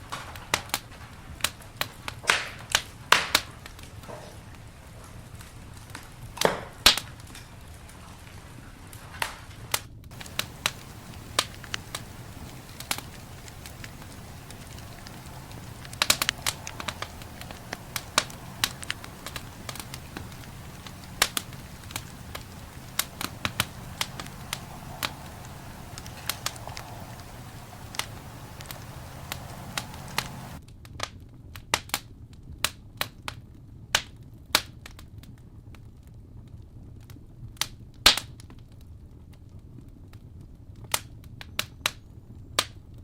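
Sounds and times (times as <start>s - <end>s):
campfire wood crackling and popping: 0.0s - 30.6s
low fire rumble: 0.0s - 30.6s.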